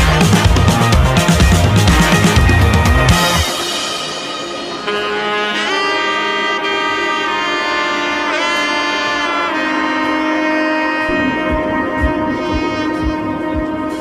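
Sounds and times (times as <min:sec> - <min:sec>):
steady beat: 0:00.0 - 0:05.8, 0:11.0 - 0:14.0
saxophone-like melody: 0:00.0 - 0:14.0.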